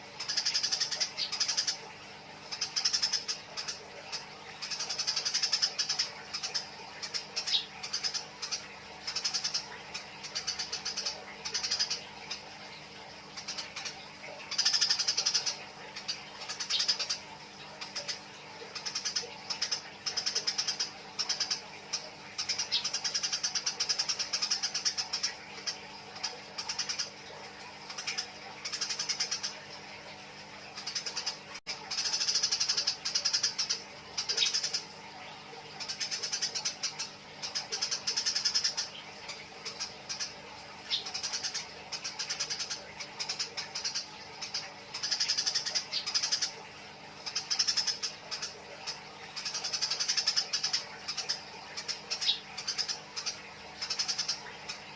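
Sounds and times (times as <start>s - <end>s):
sparrows chirping harshly: 0.0s - 30.1s, 30.7s - 54.9s.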